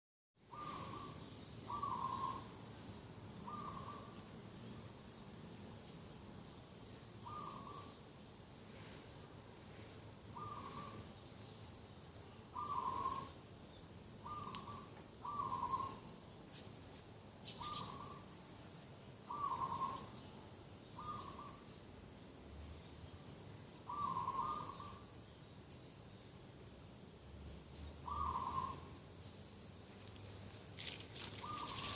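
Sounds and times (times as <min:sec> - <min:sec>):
small birds chirping: 0:00.4 - 0:08.4, 0:10.3 - 0:26.4, 0:27.5 - 0:31.9
doves cooing: 0:00.5 - 0:02.5, 0:03.4 - 0:04.1, 0:07.3 - 0:08.0, 0:10.4 - 0:11.0, 0:12.6 - 0:13.4, 0:14.3 - 0:16.1, 0:19.3 - 0:20.1, 0:23.9 - 0:25.0, 0:28.0 - 0:28.9, 0:30.8 - 0:31.9.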